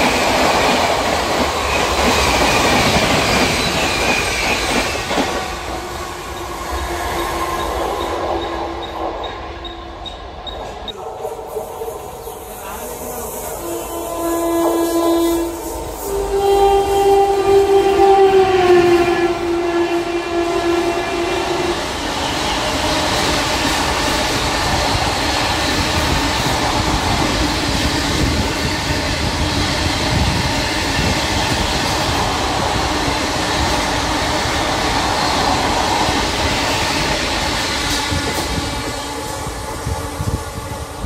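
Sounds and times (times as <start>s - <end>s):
train coaches rushing past: 0.0s - 41.0s
locomotive horn: 13.5s - 22.0s.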